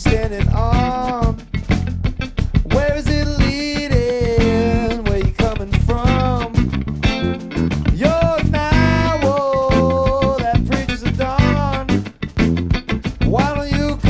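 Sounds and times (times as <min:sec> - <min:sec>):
bass: 0:00.0 - 0:14.0
drums: 0:00.0 - 0:14.0
guitar: 0:00.0 - 0:14.0.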